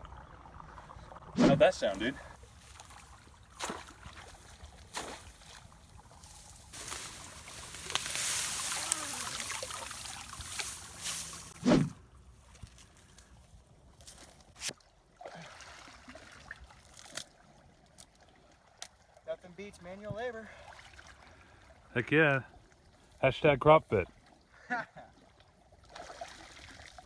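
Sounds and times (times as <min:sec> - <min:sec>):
water trickling: 0:00.0 - 0:13.1
water splashing and sloshing: 0:00.0 - 0:23.2, 0:23.9 - 0:27.0
shovel knock: 0:01.4 - 0:01.6, 0:11.6 - 0:12.0.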